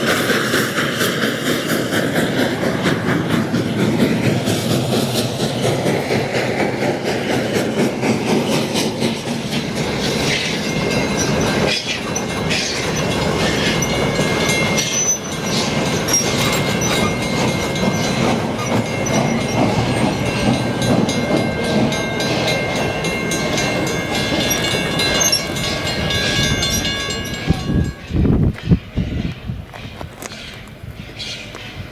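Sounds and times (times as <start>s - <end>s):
railroad cars rumbling: 0.0s - 31.9s
railroad wheels clicking over joints: 0.0s - 31.9s
steady high squeal: 7.1s - 29.3s.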